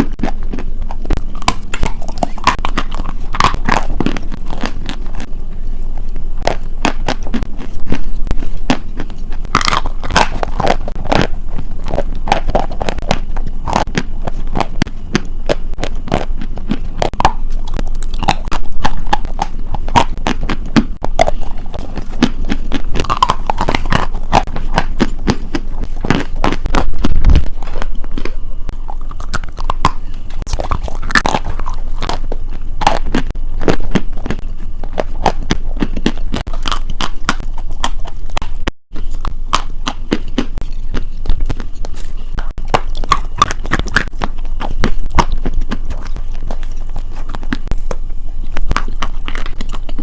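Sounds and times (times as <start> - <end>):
crunchy food chewing: 0.0 - 50.0.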